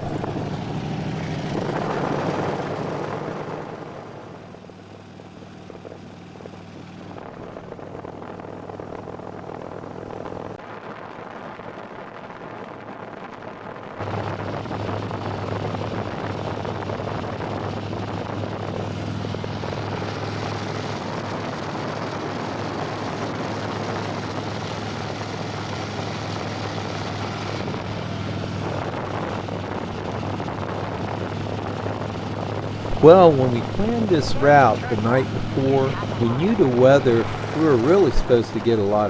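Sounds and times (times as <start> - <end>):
wind rush: 0.0 - 4.2
motorcycle engine running: 0.0 - 10.5, 32.1 - 38.1.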